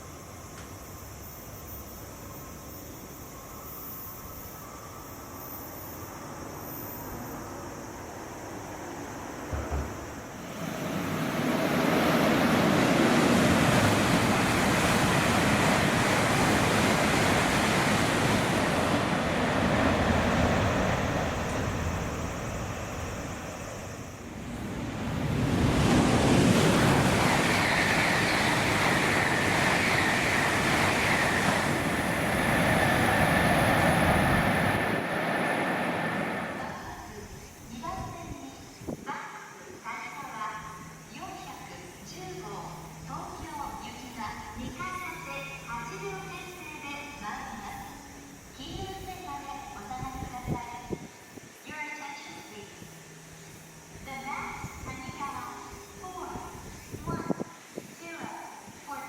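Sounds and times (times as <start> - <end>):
train rushing roar: 9.1 - 37.4
steady high whine: 9.8 - 37.8.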